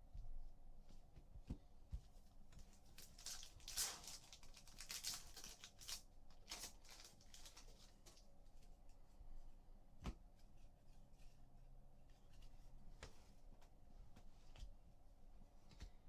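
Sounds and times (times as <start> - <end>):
wrapper tearing and crinkling: 3.0 - 8.0.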